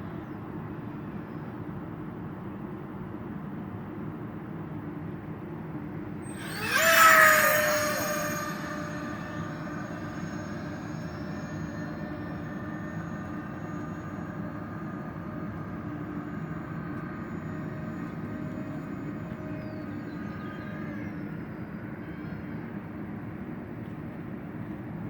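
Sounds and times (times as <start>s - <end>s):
electric ducted fans whining: 6.0s - 22.0s
rushing noise: 6.3s - 19.6s.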